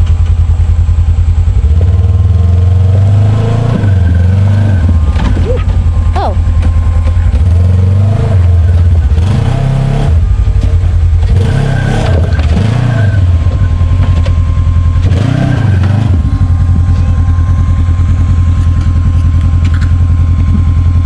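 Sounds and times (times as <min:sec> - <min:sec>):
utility vehicle engine revving: 0:00.0 - 0:21.0.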